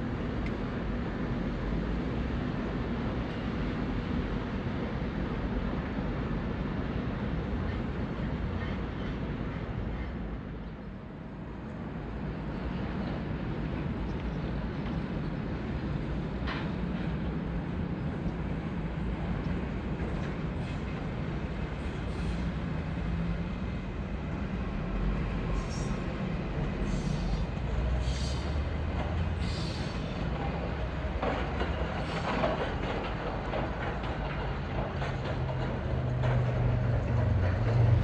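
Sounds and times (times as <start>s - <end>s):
train rumbling on tracks: 0.0s - 38.0s
train wheels squealing: 25.4s - 30.3s.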